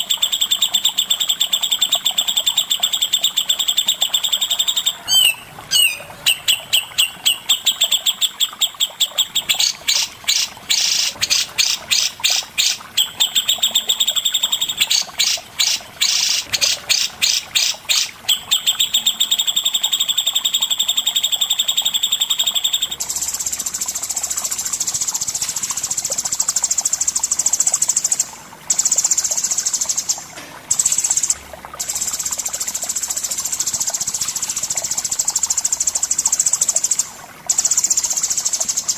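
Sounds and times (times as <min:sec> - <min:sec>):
songbird trilling: 0:00.0 - 0:19.6.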